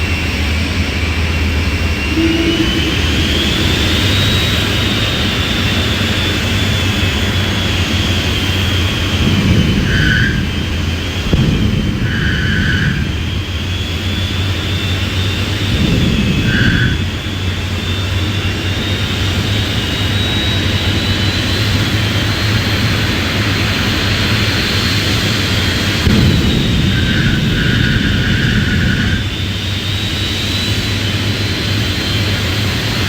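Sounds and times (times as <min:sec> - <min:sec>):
jet engine high whine: 0:00.0 - 0:33.0
deep rumble: 0:01.6 - 0:07.6, 0:08.4 - 0:17.6, 0:26.0 - 0:29.9.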